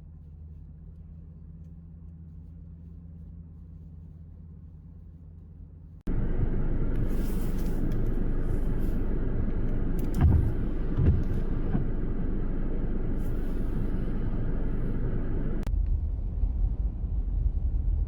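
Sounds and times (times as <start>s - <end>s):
outdoor rumble: 0.3s - 15.7s
low thumps: 7.8s - 15.7s.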